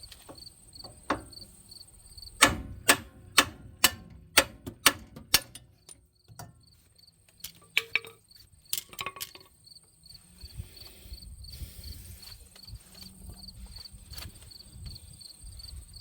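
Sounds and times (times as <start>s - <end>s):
insect chirping: 0.0s - 2.4s, 6.1s - 16.0s
sharp knocks: 2.4s - 5.7s.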